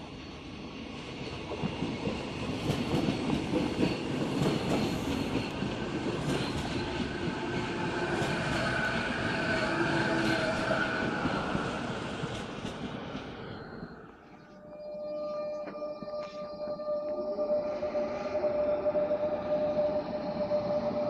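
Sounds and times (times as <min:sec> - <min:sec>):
high whine: 0:13.4 - 0:21.0.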